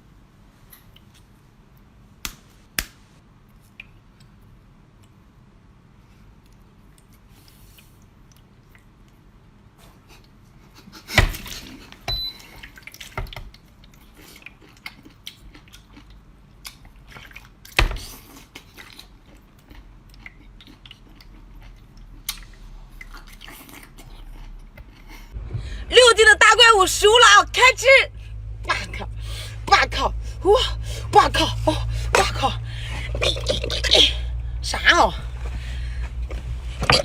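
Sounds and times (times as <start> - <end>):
wet eating noises: 6.2 - 25.4, 31.8 - 34.4.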